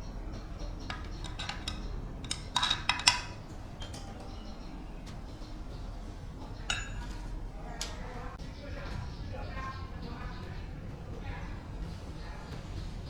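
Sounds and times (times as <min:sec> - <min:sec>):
metallic clattering: 0:00.0 - 0:07.4
small metal objects clinking: 0:00.9 - 0:03.4.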